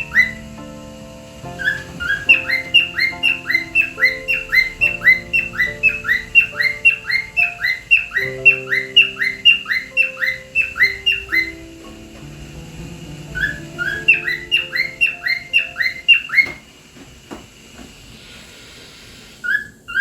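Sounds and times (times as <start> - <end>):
cockatiel whistling: 0.0 - 0.6, 1.6 - 12.0, 13.3 - 16.6
soft background music: 0.0 - 16.6.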